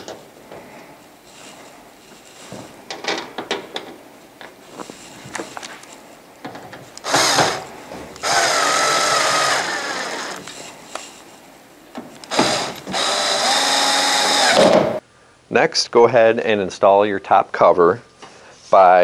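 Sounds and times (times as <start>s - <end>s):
cordless drill driving screws: 7.0s - 10.6s, 12.2s - 14.7s.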